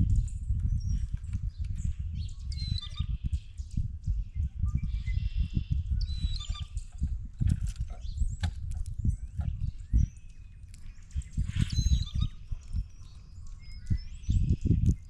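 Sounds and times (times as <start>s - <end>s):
birds calling and chirping: 0.0s - 15.0s
low bumps and knocks: 6.9s - 10.1s.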